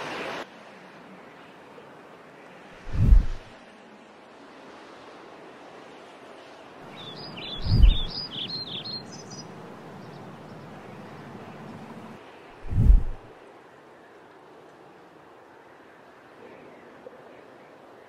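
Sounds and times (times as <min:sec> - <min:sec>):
steady outdoor hiss: 0:00.0 - 0:18.0
birds chirping: 0:06.9 - 0:13.3.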